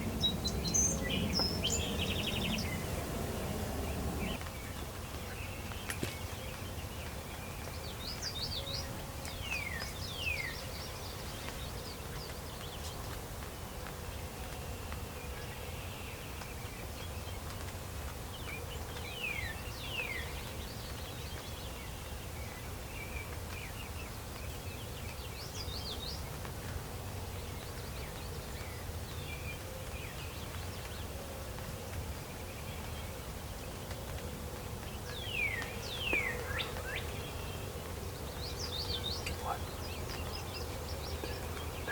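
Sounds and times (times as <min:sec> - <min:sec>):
low outdoor rumble: 0:00.0 - 0:06.5
songbirds chirping: 0:00.0 - 0:41.9.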